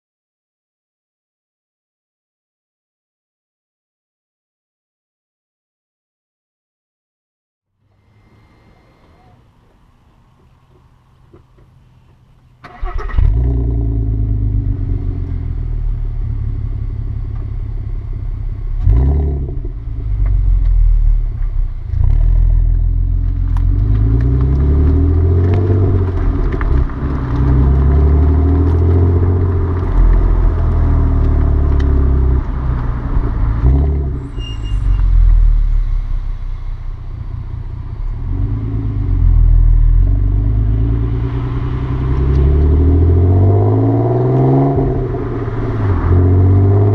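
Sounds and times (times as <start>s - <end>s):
car engine revving: 12.6s - 46.9s.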